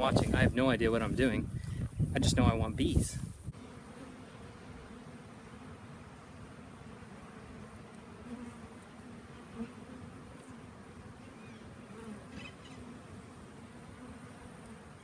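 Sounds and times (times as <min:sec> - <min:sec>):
bee swarm buzzing: 0:03.2 - 0:15.0
single bee passing close: 0:03.2 - 0:15.0.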